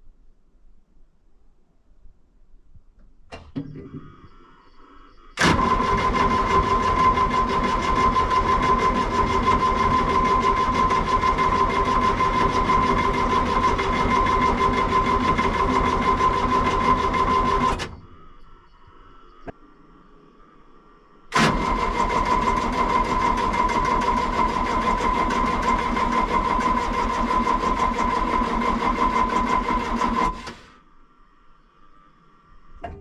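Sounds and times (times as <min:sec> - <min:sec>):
diesel engine starter cranking: 0:03.3 - 0:04.7, 0:05.3 - 0:18.4, 0:21.3 - 0:30.8.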